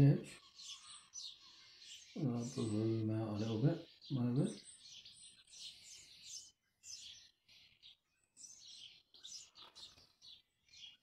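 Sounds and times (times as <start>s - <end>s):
faint birdsong chirping: 0.0s - 11.0s.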